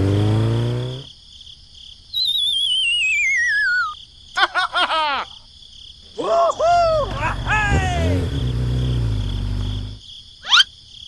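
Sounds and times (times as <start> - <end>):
arched chirping calls: 2.1 - 4.0, 9.8 - 10.7
cartoon whistle sliding down: 2.2 - 4.0, 10.4 - 10.7.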